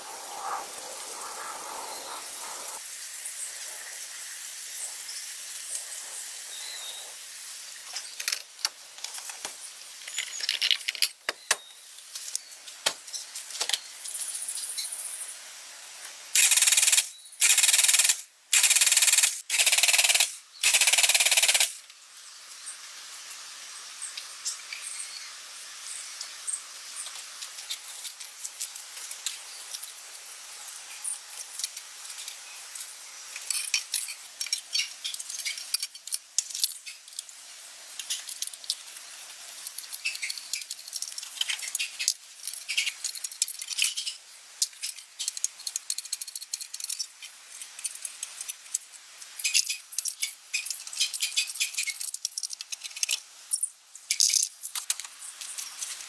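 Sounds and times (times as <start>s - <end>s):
metal parts clicking and clinking: 10.0s - 11.6s, 33.4s - 37.3s, 38.0s - 38.9s, 39.6s - 55.9s.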